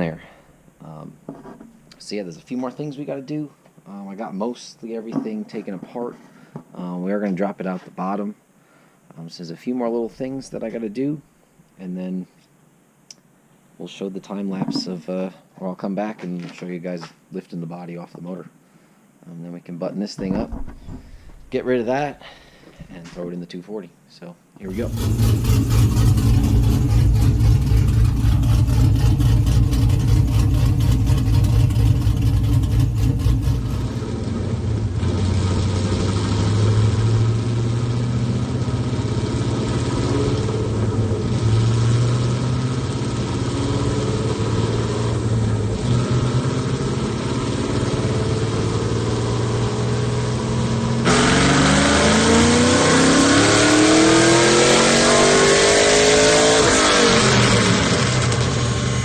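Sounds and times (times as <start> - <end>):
car engine running: 24.6 - 49.9.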